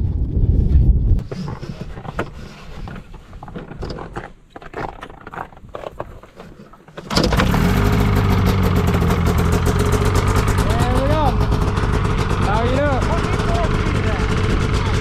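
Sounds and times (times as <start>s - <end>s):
snowmobile engine running: 7.1s - 15.0s.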